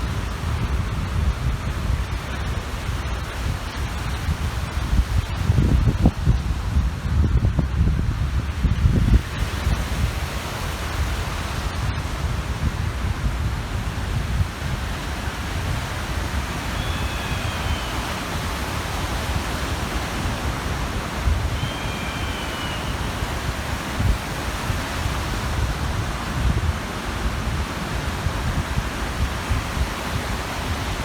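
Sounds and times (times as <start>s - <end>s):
wind buffeting microphone: 0.0s - 31.0s
waves washing on shore: 8.1s - 31.0s
faint bird call: 16.6s - 18.5s, 21.4s - 23.4s.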